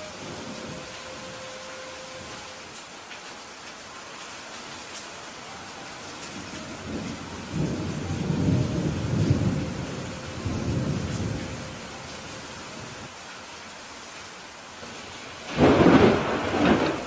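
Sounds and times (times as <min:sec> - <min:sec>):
steady rain falling: 0:00.0 - 0:17.0
thunder rumbling: 0:06.4 - 0:13.1, 0:15.4 - 0:17.0.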